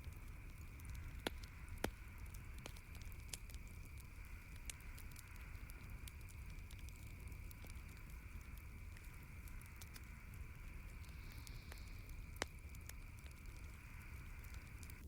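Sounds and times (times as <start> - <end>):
campfire crackling and popping: 0.0 - 15.0
low fire hiss: 0.0 - 15.0.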